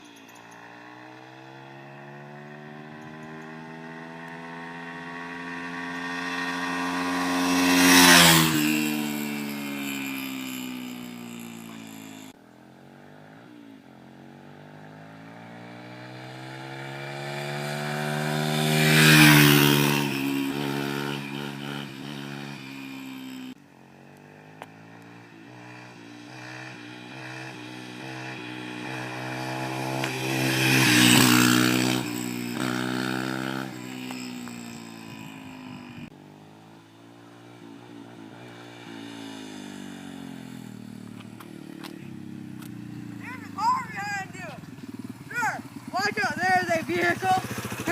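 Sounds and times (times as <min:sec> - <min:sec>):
dirt bike riding past: 0:00.0 - 0:47.9.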